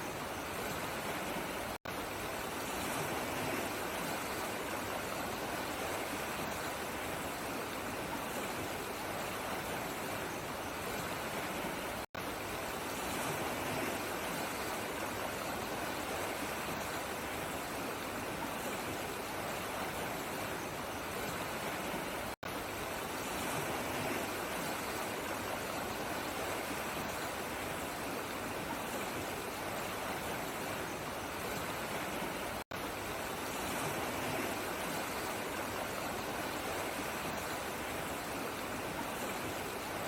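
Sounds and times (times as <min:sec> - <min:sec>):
flowing water: 0:00.0 - 0:40.0.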